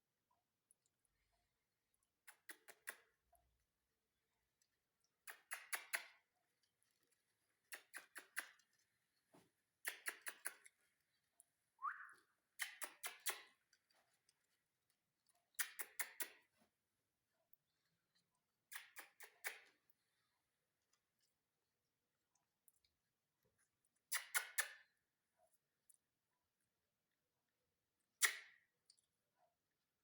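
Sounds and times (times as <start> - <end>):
rising whistle-like chirp: 11.8 - 12.2.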